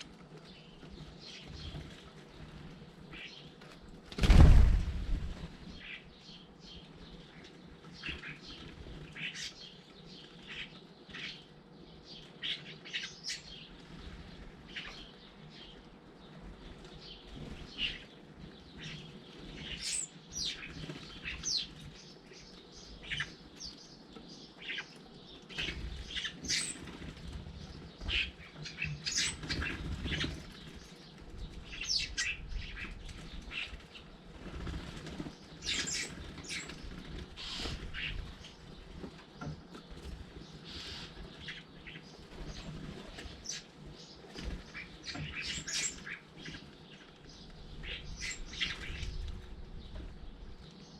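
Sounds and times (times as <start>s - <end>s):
birds chirping: 0.0s - 50.9s
wings flapping: 4.0s - 6.0s
low rumbling bumps: 4.2s - 5.8s.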